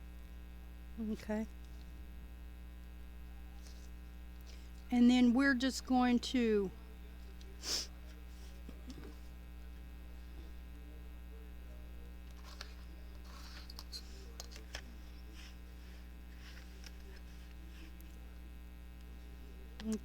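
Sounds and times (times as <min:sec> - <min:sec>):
electrical mains hum: 0:00.0 - 0:20.0
paper rustling: 0:12.4 - 0:17.9.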